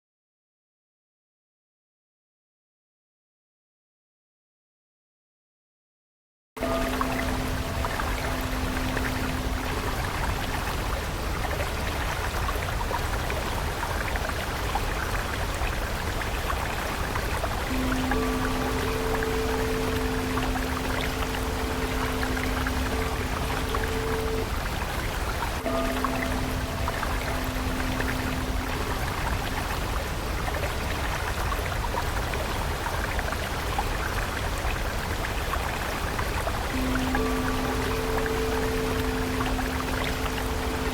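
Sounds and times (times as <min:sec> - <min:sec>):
soft held musical tone: 0:06.6 - 0:40.9
stream water running: 0:06.6 - 0:40.9
trickling drips: 0:06.6 - 0:40.9.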